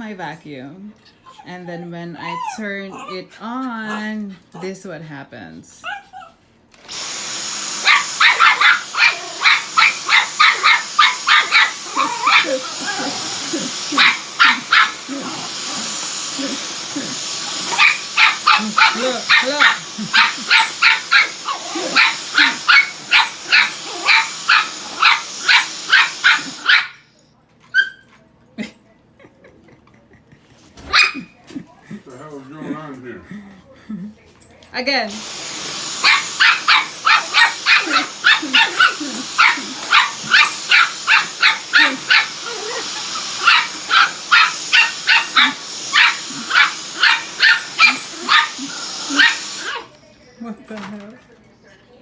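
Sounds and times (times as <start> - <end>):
vacuum cleaner whine: 6.7 - 27.2, 35.1 - 50.9
dog barking: 7.8 - 13.0, 14.0 - 15.0, 17.7 - 27.0, 30.9 - 31.3, 36.0 - 42.8, 43.4 - 49.9.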